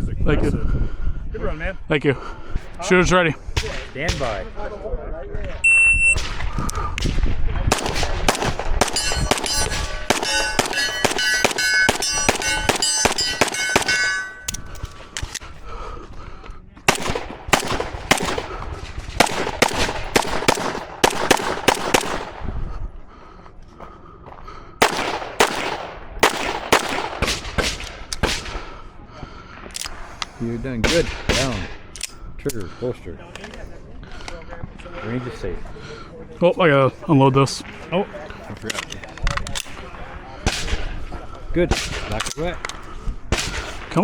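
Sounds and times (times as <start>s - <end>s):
rapid gunshots: 6.2s - 14.3s, 16.9s - 22.4s, 24.8s - 28.7s
steel targets clanging: 8.8s - 14.6s.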